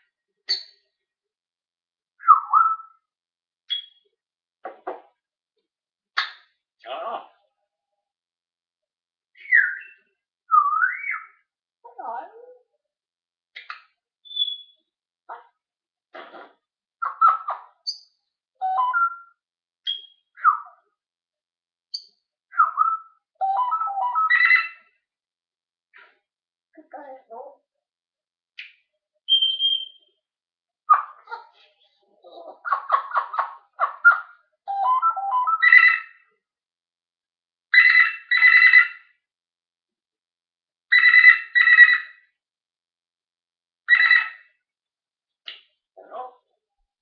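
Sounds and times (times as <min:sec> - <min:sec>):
parrot whistling and chirping: 0:02.2 - 0:03.1, 0:03.7 - 0:04.0, 0:09.4 - 0:11.4, 0:13.6 - 0:14.8, 0:17.0 - 0:20.8, 0:21.9 - 0:24.9, 0:29.3 - 0:30.1, 0:32.6 - 0:36.2, 0:37.7 - 0:39.1, 0:40.9 - 0:42.2, 0:43.9 - 0:44.5.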